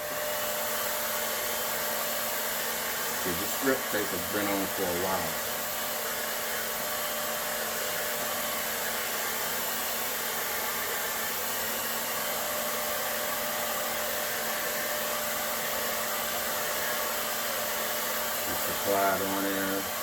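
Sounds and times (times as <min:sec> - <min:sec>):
hot-air blower running: 0:00.0 - 0:20.0.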